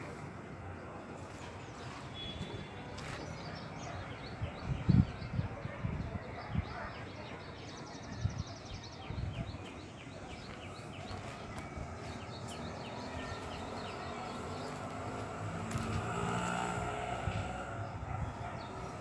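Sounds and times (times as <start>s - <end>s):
wind rumble on microphone: 4.2s - 7.0s, 8.0s - 9.7s, 15.6s - 19.0s.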